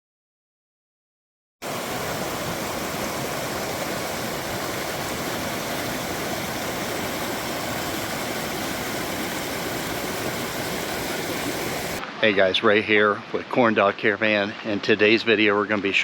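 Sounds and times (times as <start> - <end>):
creek rushing: 1.6 - 13.8.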